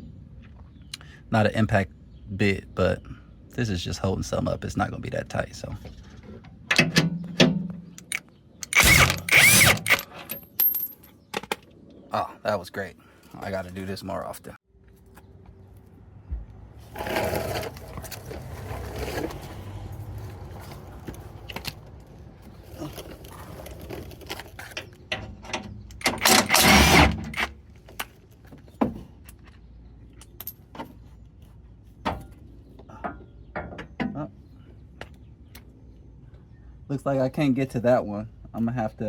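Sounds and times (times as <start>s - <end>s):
metal tools and bolts clinking: 6.7s - 11.6s, 23.5s - 27.5s
impact driver running: 8.7s - 10.0s, 26.1s - 27.2s.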